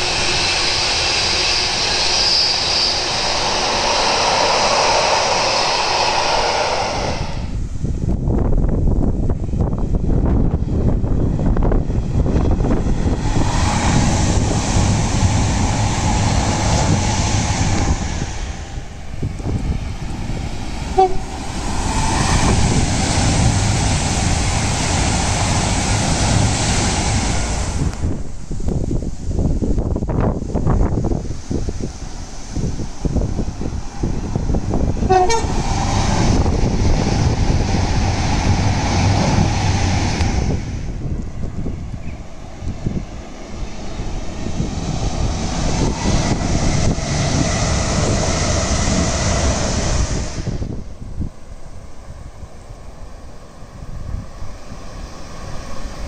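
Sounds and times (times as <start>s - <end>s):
passenger train passing at speed: 0.0s - 56.0s
rush of wheels on rail: 0.0s - 56.0s
train horn toot: 20.9s - 21.4s, 35.0s - 35.6s.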